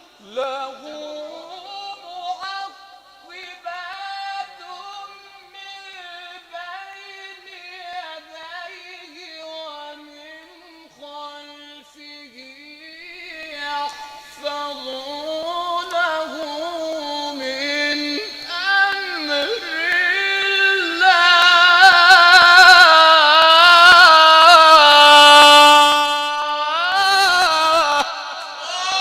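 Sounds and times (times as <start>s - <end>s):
boy reciting melodically: 0.0s - 29.0s.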